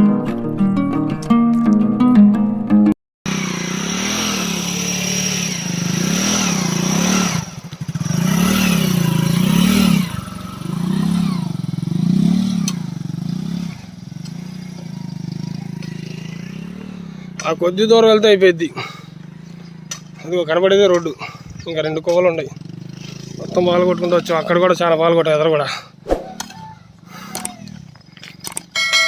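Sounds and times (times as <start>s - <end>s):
truck diesel engine labouring: 3.3s - 24.9s.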